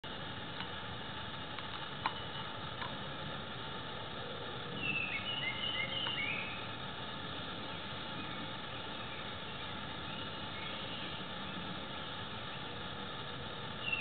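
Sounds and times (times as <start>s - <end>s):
steady outdoor hiss: 0.0s - 14.0s
bird chirping: 4.7s - 6.7s, 7.6s - 11.6s, 13.8s - 14.0s.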